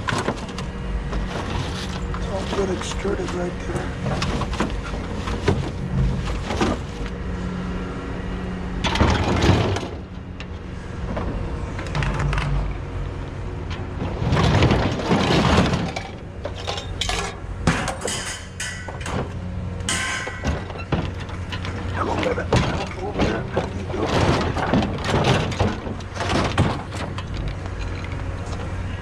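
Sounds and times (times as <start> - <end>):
steady low hum: 0.0 - 29.0
scrap metal clattering onto pile: 14.2 - 19.3, 19.9 - 28.0
sharp metal knocks: 17.0 - 19.3, 19.9 - 20.8.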